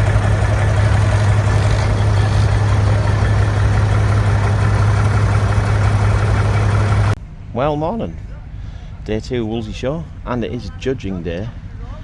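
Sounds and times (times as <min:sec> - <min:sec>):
diesel engine idling: 0:00.0 - 0:07.2.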